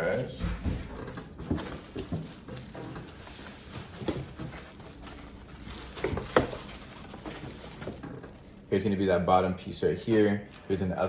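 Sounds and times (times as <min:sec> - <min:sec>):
packaging rustling: 0:00.0 - 0:09.0, 0:10.2 - 0:11.0
cardboard and plastic knocks: 0:00.4 - 0:02.7, 0:06.0 - 0:06.8.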